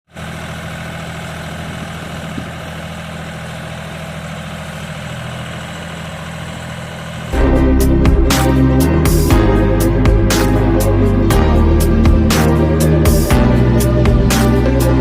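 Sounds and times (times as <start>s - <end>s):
tractor diesel engine running: 0.1s - 15.0s.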